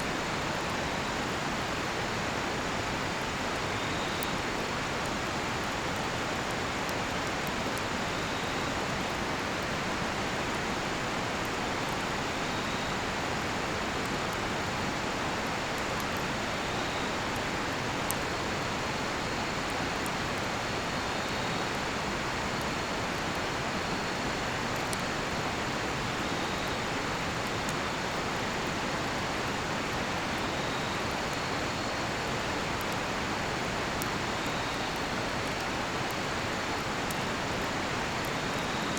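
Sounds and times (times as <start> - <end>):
campfire crackling and popping: 13.1 - 23.4, 24.4 - 38.9
crickets chirping: 30.1 - 38.9.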